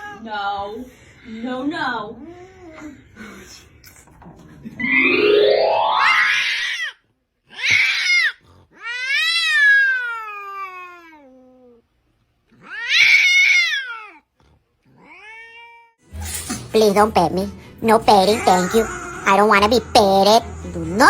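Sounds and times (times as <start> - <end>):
cat yowling meows: 7.5 - 11.2, 12.6 - 14.2.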